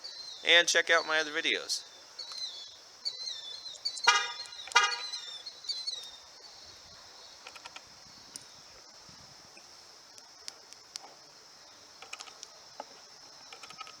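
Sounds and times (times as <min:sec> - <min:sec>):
birds chirping: 0:00.0 - 0:14.0
insect hum: 0:00.0 - 0:14.0
car horn toots: 0:04.1 - 0:05.2.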